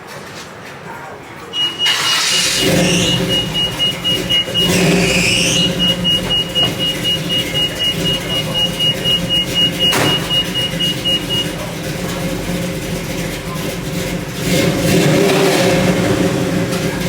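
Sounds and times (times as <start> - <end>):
rapid electronic beeps: 1.6 - 11.7
car engine running: 1.6 - 17.0.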